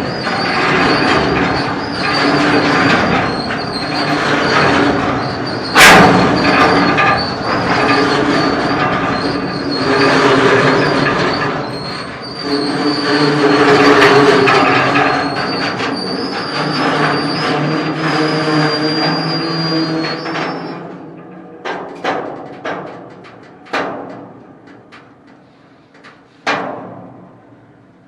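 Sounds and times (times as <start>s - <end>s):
wheel squeal: 0.0s - 21.5s
freight train rumble: 0.0s - 28.0s.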